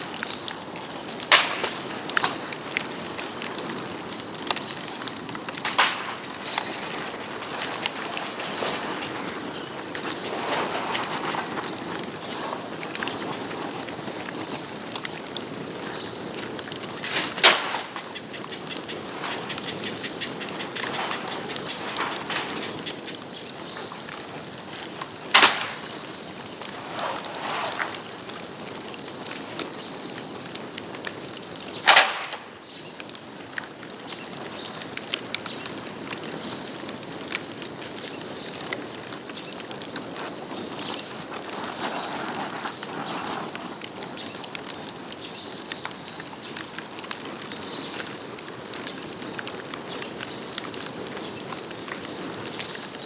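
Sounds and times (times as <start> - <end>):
bonfire crackling: 0.0 - 53.0
small pops: 0.2 - 13.1, 16.7 - 28.2, 31.8 - 32.8
bamboo bursting with loud bangs: 1.0 - 12.1, 16.8 - 24.2, 24.8 - 28.5, 31.8 - 32.8.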